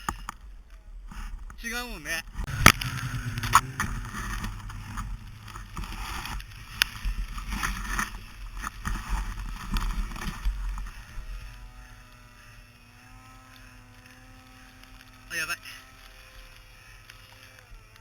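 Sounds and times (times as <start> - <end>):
scraping over snow: 1.1 - 18.0
wind rumbling on microphone: 2.2 - 11.8.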